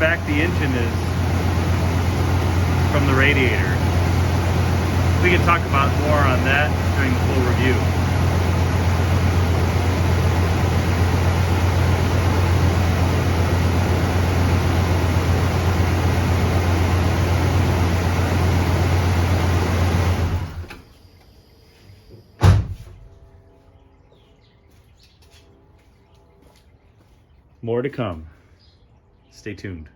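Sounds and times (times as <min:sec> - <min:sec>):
car engine idling: 0:00.0 - 0:20.8
car door thump: 0:22.4 - 0:23.1.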